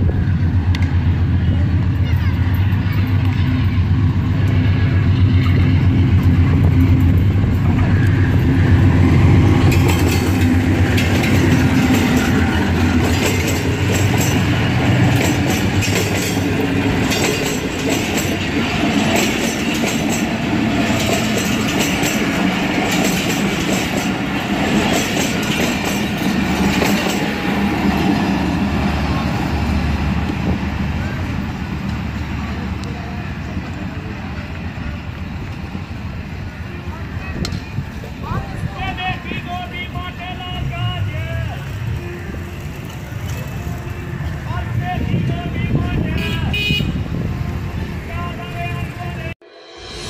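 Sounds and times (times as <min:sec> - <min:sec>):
locomotive engine drone: 0:00.0 - 0:38.7, 0:39.8 - 0:45.8
train wheels clicking over rail joints: 0:05.2 - 0:28.2.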